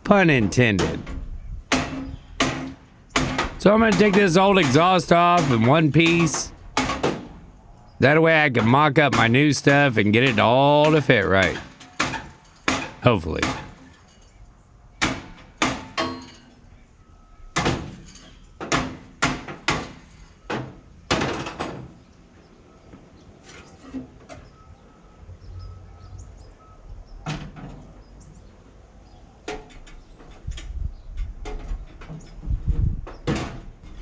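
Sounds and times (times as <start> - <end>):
sharp metal knocks: 1.7 - 7.3.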